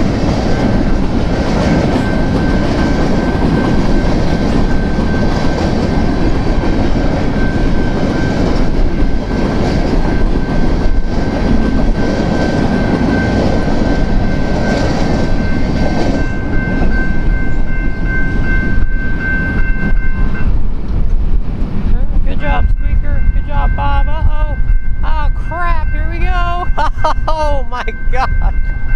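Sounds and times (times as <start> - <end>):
wheels clacking over rail joints: 0.0 - 22.0
freight train rumbling past: 0.0 - 28.9.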